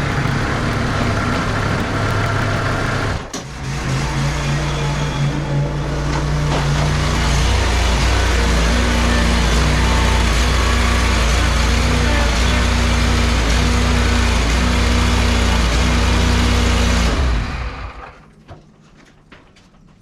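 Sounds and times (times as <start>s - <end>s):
tractor engine running: 0.0s - 3.5s.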